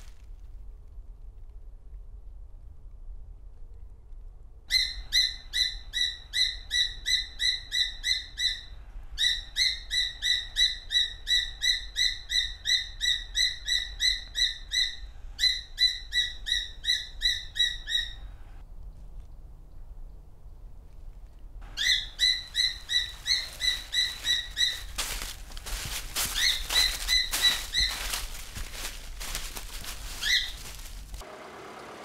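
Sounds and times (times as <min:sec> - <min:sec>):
bird calling sharp high notes: 0:21.7 - 0:31.0.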